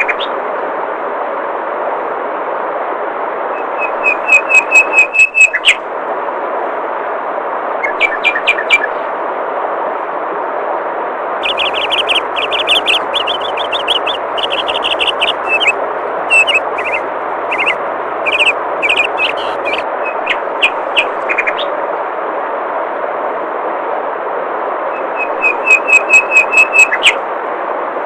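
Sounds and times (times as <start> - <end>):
flowing water: 11.4 - 19.8
songbird chirping: 11.4 - 21.7.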